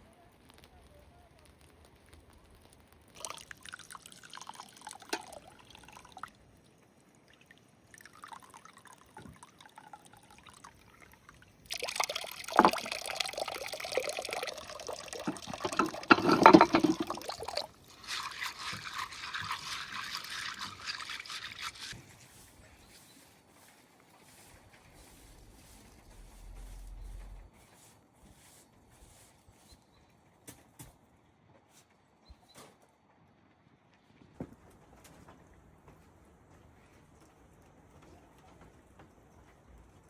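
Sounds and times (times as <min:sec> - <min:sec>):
liquid pouring and splashing: 0:01.5 - 0:22.0, 0:23.7 - 0:27.5.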